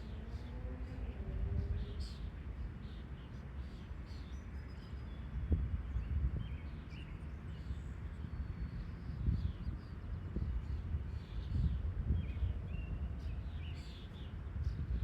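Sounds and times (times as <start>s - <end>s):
low outdoor rumble: 0.0s - 3.3s.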